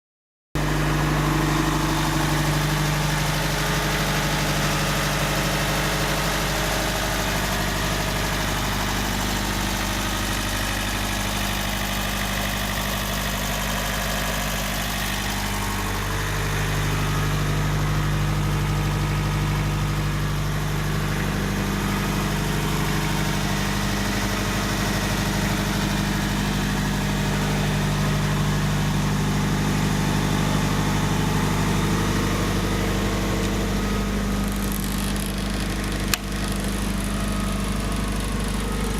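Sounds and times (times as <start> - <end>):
engine idling: 0.6 - 38.9.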